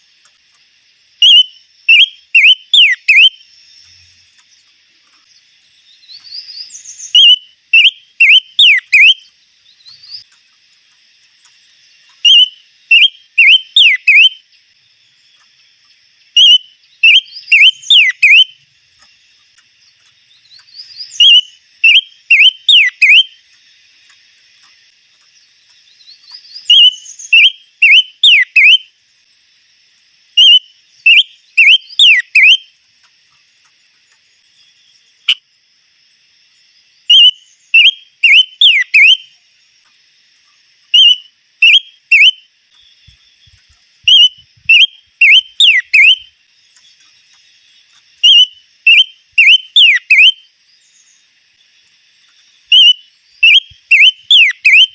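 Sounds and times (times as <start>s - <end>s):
faint insect drone: 0.0s - 54.9s
songbird whistling phrases: 1.2s - 3.4s, 6.1s - 9.3s, 12.2s - 14.4s, 16.4s - 18.6s, 20.8s - 23.4s, 26.3s - 28.9s, 30.4s - 32.6s, 37.1s - 39.3s, 41.0s - 42.4s, 44.1s - 46.3s, 48.2s - 50.5s, 52.7s - 54.9s.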